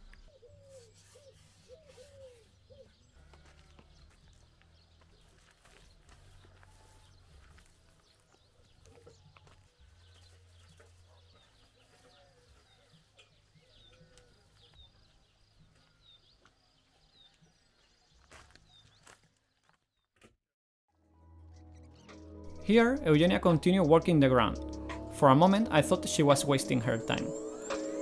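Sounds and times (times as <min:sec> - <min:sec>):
small birds chirping: 0:00.0 - 0:20.1.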